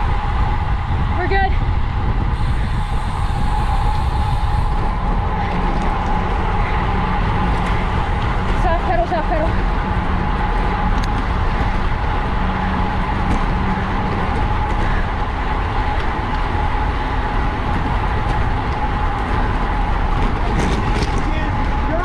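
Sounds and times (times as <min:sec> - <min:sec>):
tyre and road noise: 0:00.0 - 0:22.0
wind rushing over microphone: 0:00.0 - 0:22.0.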